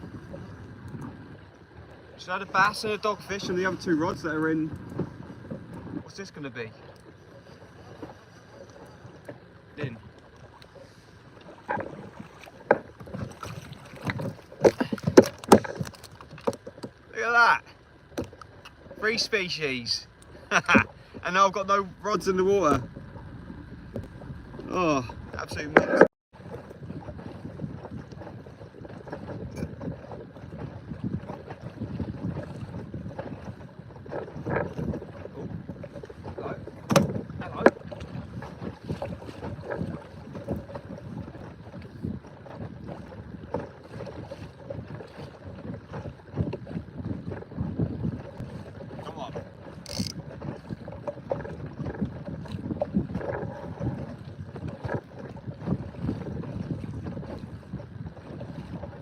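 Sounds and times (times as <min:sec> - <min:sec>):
wind buffeting microphone: 0:00.0 - 0:10.1, 0:19.0 - 0:59.0
water moving against hull: 0:00.0 - 0:59.0
small knocks and clicks: 0:49.8 - 0:50.2.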